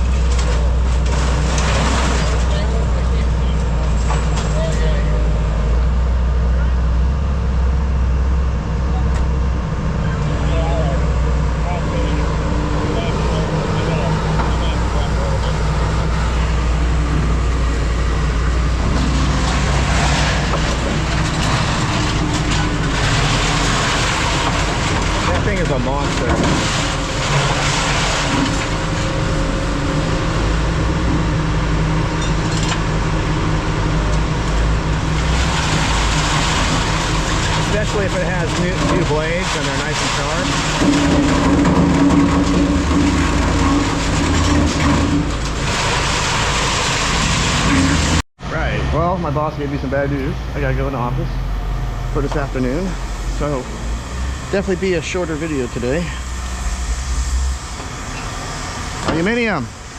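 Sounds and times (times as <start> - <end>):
diesel machinery droning: 0.0 - 59.9
scrap-metal shear humming: 10.0 - 30.5, 35.0 - 48.2
pitched machine tone: 50.1 - 59.8.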